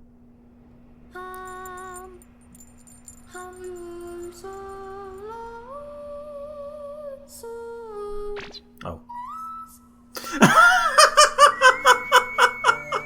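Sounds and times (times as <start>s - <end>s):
faint twinkling chime: 1.2s - 6.4s.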